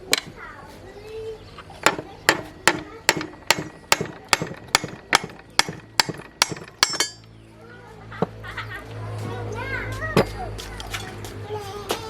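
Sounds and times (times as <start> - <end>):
hammer blows ringing: 1.8 - 7.3.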